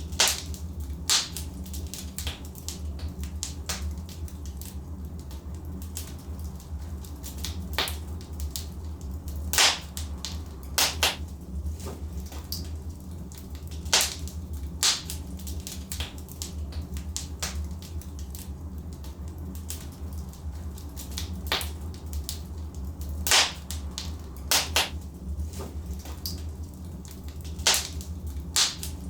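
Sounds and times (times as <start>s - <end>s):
logs crackling in fireplace: 0.0s - 29.0s
steady low hum: 0.0s - 29.0s
loud sharp wood snaps: 9.6s - 10.0s, 10.8s - 11.2s, 13.9s - 15.2s, 23.3s - 23.8s, 24.5s - 25.0s, 27.7s - 28.0s, 28.6s - 29.0s.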